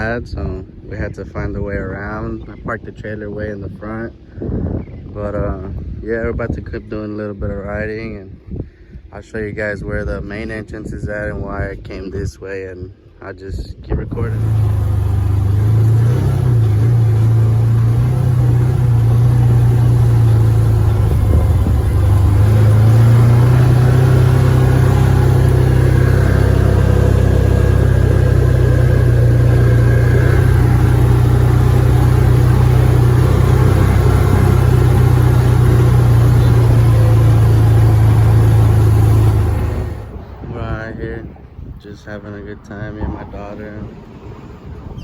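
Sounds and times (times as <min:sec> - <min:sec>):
utility vehicle engine running: 0:14.1 - 0:40.4.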